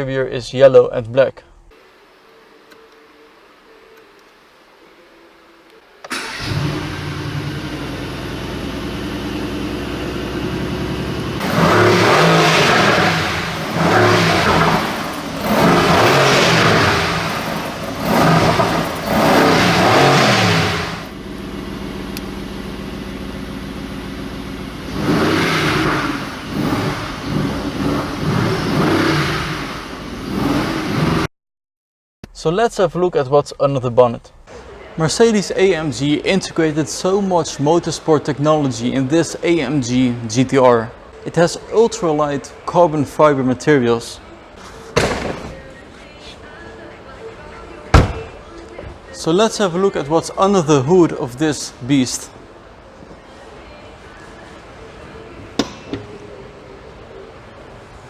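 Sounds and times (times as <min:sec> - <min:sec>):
car engine starting: 0:06.0 - 0:31.3
car engine idling: 0:06.1 - 0:31.3
car engine revving: 0:06.1 - 0:31.3.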